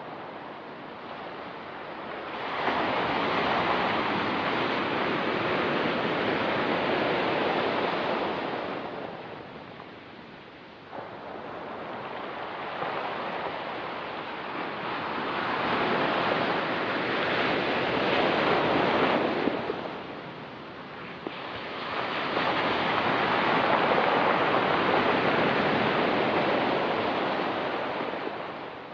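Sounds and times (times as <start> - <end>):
waves washing on pebbly shore: 10.9 - 28.9.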